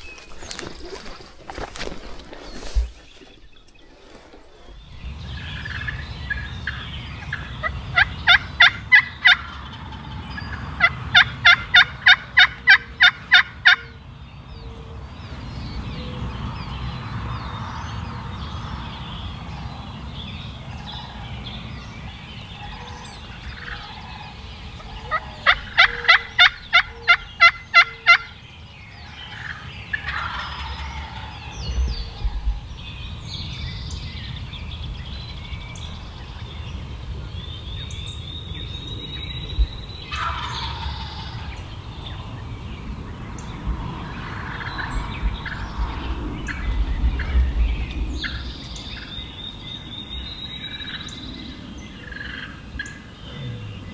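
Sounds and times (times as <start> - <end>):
turkey yelping: 5.4 - 13.9, 22.7 - 28.4, 29.2 - 31.6, 40.1 - 41.6.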